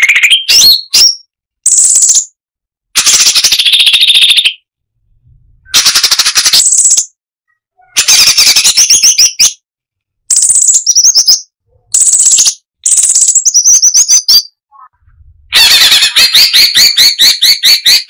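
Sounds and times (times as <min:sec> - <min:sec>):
bird singing chattering phrases: 0:00.0 - 0:02.3, 0:05.7 - 0:07.1, 0:10.3 - 0:18.0.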